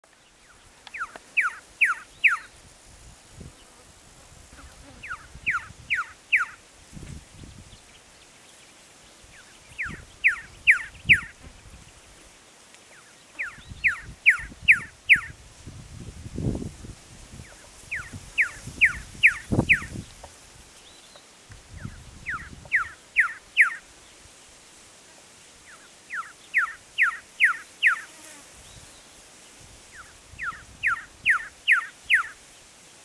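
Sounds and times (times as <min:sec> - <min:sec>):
bird whistling downward notes: 0:09.8 - 0:11.3.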